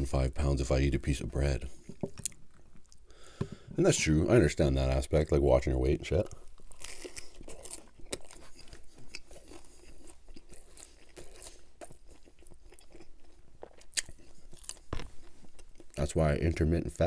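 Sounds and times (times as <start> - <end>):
person chewing crunchy sandwich: 1.6 - 3.6, 6.2 - 16.0.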